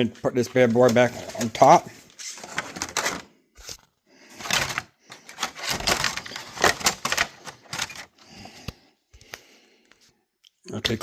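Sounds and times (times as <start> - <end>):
hard plastic parts clicking and rattling: 0.4 - 8.8.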